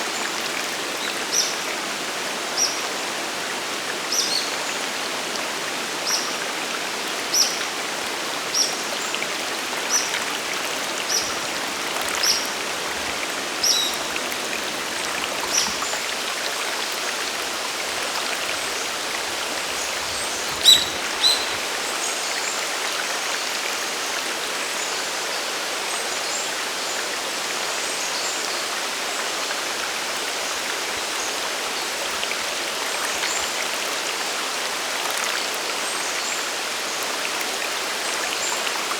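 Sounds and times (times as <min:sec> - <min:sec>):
waterfall and stream rushing: 0:00.0 - 0:38.9
bird call notes: 0:20.6 - 0:21.7.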